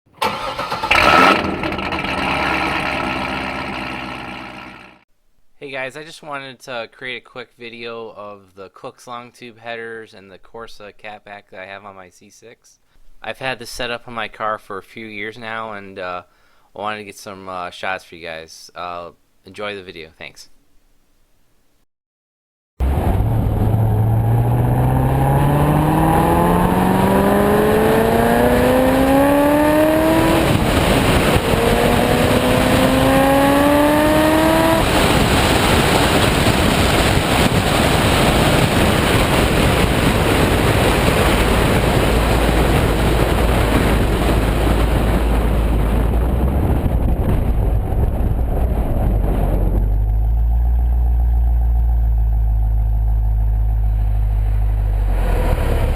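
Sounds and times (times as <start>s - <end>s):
car engine accelerating hard: 0.2s - 5.0s, 22.8s - 55.9s
rushing noise at speed: 22.8s - 55.9s
low steady hum: 42.1s - 55.2s.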